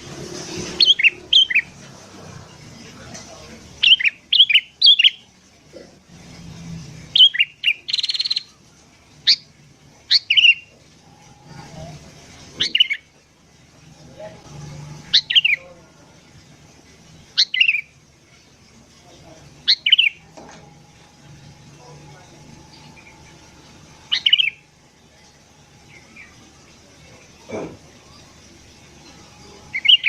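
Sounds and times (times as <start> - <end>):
bird harsh buzz: 0.0 - 2.4.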